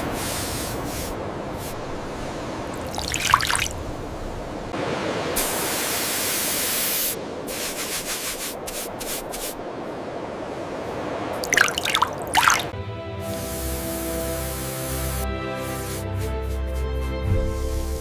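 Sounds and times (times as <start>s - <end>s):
water spraying hiss: 0.0s - 3.8s, 5.3s - 9.6s, 11.4s - 16.7s, 17.4s - 18.0s
water squirts: 2.7s - 3.8s, 11.4s - 12.7s
drip-like plinks: 2.8s - 3.7s, 11.4s - 12.7s.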